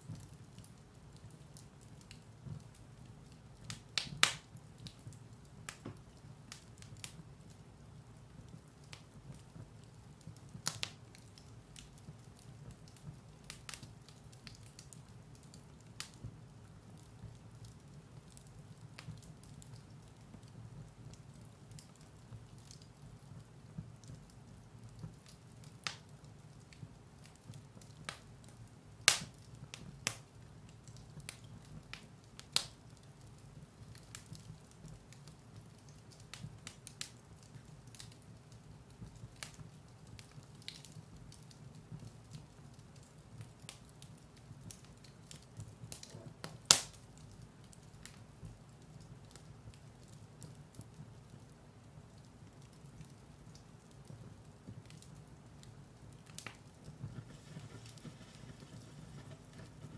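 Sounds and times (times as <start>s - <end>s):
firewood crackling in fireplace: 0.0s - 59.9s
loud fire snaps: 0.0s - 59.9s.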